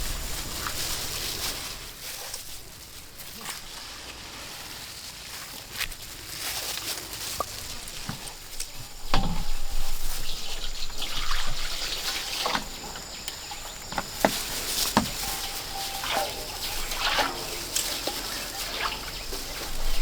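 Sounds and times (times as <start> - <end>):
liquid trickling and dripping: 7.2 - 20.0.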